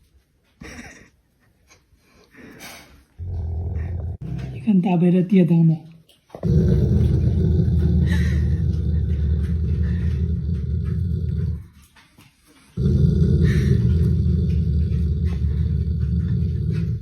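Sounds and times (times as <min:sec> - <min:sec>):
dog growling: 0:03.2 - 0:04.7, 0:06.4 - 0:12.0, 0:12.7 - 0:17.0.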